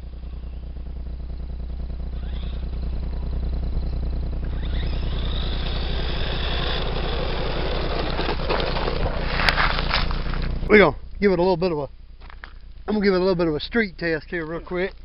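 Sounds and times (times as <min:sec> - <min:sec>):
rc car motor whining: 0:00.0 - 0:10.7
low rumble: 0:00.0 - 0:15.0.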